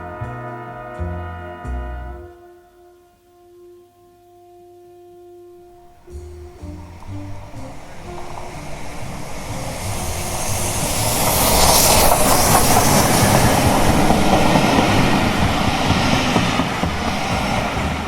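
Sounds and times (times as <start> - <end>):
train rolling on rails: 5.7 - 18.0.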